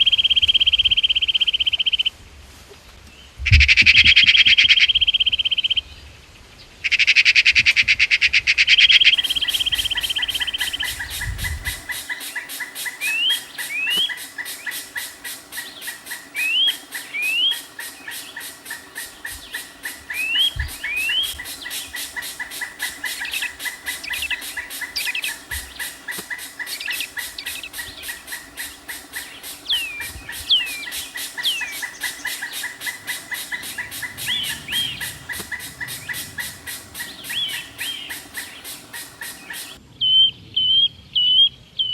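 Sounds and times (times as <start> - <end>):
bird buzzing trill: 8.9 - 39.8
short rising bird chirps: 8.9 - 39.8
rapid pulsing background: 9.2 - 39.8.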